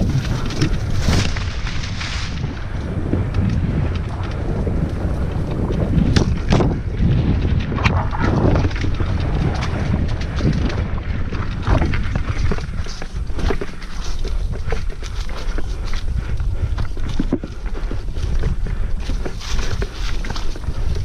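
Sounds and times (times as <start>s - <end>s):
bike rattles and knocks: 0.0s - 21.0s
wind rumble on microphone: 0.0s - 21.0s.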